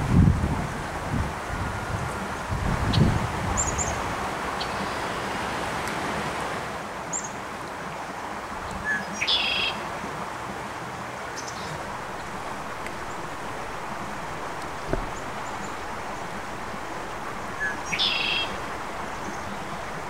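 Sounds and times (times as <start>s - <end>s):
rushing background noise: 0.0s - 20.0s
small birds chirping: 11.4s - 20.0s
low buffet: 11.7s - 20.0s.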